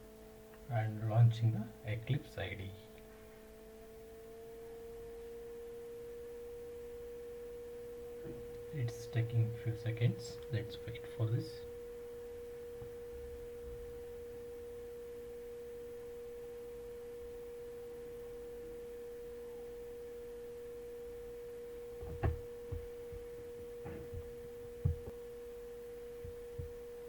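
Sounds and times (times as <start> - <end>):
steady hum: 0.0 - 27.0
soft knocks: 22.0 - 25.2.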